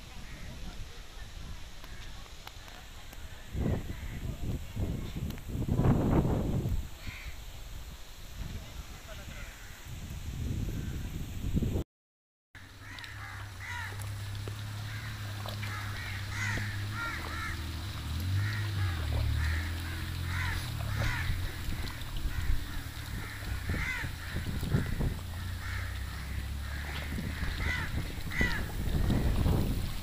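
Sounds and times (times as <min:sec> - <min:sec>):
birds harsh calls: 0:12.6 - 0:29.8.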